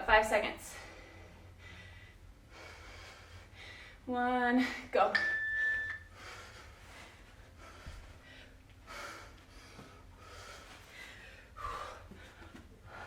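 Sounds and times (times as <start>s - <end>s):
heavy breathing: 0.6s - 4.1s, 6.0s - 13.0s.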